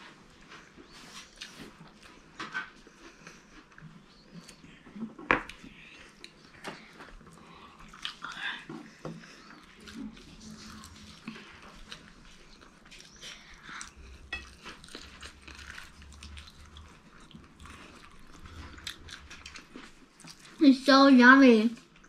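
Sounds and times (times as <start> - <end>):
children chewing crunchy food: 0.0 - 20.9, 21.7 - 22.0.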